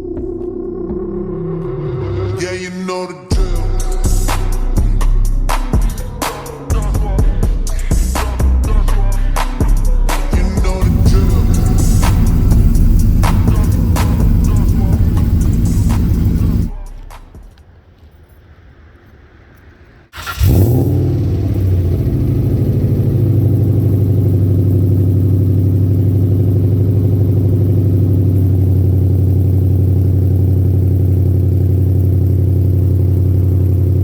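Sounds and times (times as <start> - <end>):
car engine running: 10.8 - 17.3, 20.2 - 34.0.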